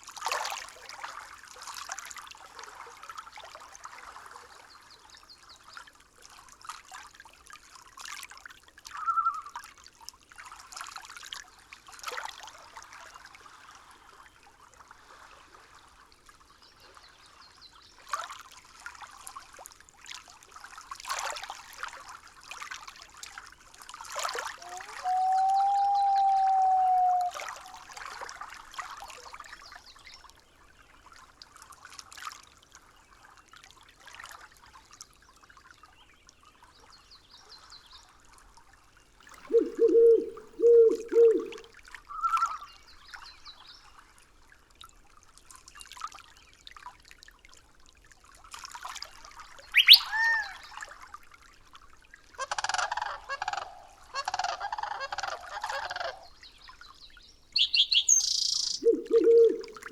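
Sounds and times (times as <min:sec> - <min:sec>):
faint trickling water: 0:00.0 - 0:59.9
bird calls: 0:24.6 - 0:27.5, 0:39.4 - 0:42.7, 0:49.8 - 0:50.7, 0:57.6 - 0:59.9
low honk-like bird calls: 0:24.6 - 0:27.5, 0:49.8 - 0:50.6, 0:57.6 - 0:59.9.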